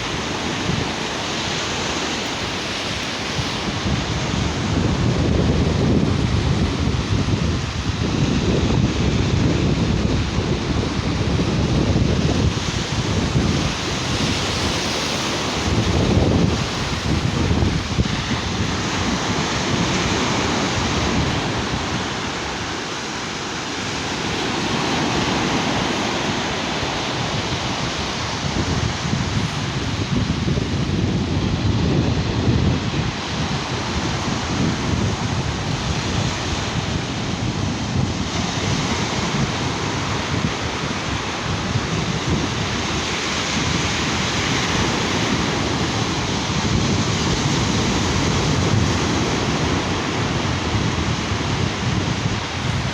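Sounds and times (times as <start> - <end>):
waves washing onto beach: 0.0 - 52.9
wind buffeting microphone: 0.0 - 52.9.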